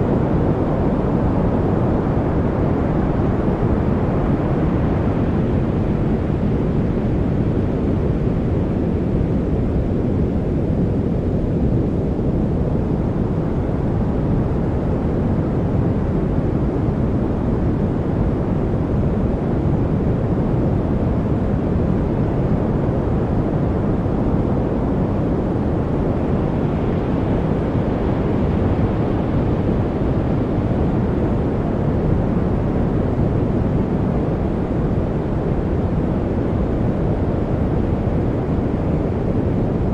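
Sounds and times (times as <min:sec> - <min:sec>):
deep white noise: 0:00.0 - 0:39.9.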